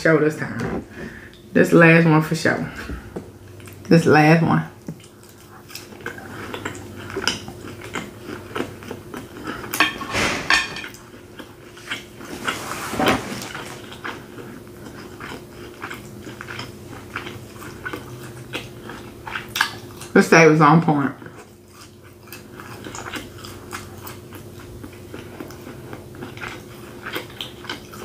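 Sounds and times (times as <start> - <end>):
person chewing food: 2.9 - 3.9, 4.8 - 9.9, 10.8 - 12.6, 13.4 - 20.1, 21.2 - 28.0.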